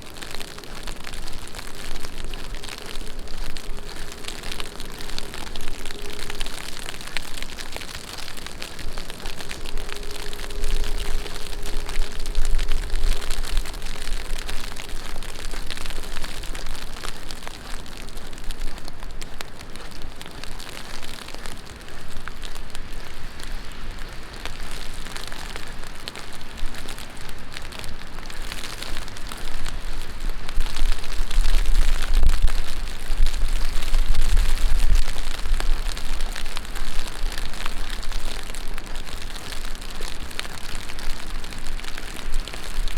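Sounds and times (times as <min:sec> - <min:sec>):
low rumbles: 0:00.0 - 0:24.0
heavy rain on street: 0:00.0 - 0:42.9.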